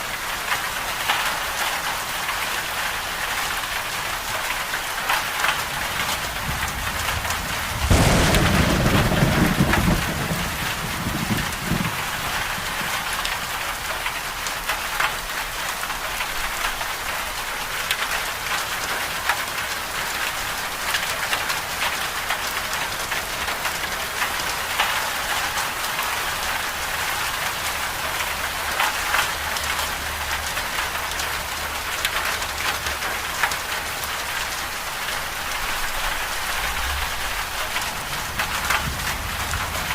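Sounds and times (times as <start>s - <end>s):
steady rain: 0.0s - 39.9s
thunder crack and rumble: 5.0s - 14.1s, 35.2s - 39.9s.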